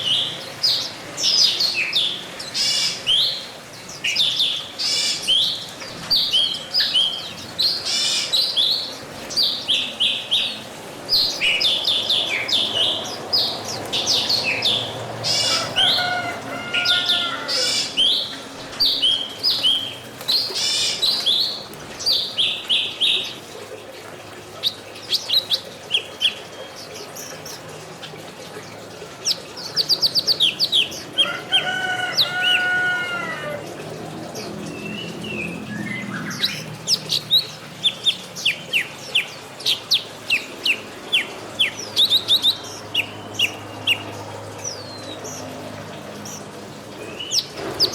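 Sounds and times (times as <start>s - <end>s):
small birds chirping: 0.0s - 23.5s, 34.3s - 47.9s.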